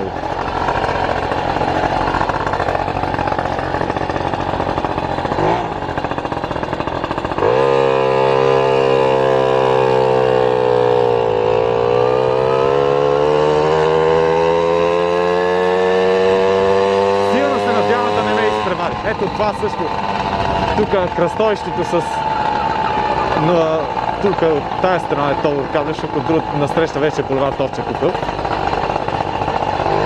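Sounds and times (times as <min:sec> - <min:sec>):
motorcycle engine accelerating: 0:00.0 - 0:30.0
wind noise: 0:20.1 - 0:21.0.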